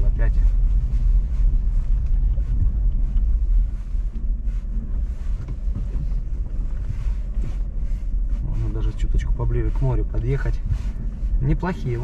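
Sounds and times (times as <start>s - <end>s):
wind noise on microphone: 0.0s - 8.7s
car driving over rough ground: 0.0s - 12.0s.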